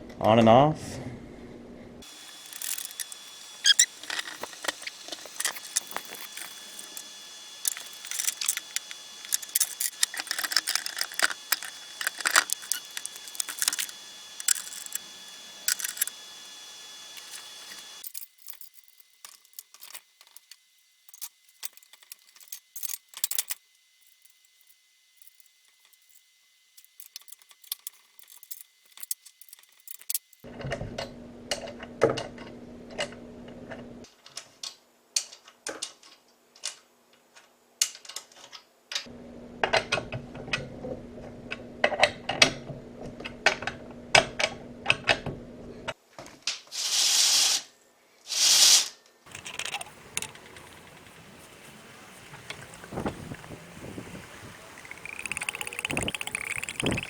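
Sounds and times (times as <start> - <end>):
metal parts clinking and rattling: 2.0 - 15.0, 15.6 - 16.1, 17.2 - 24.3, 26.8 - 30.4, 49.3 - 53.4.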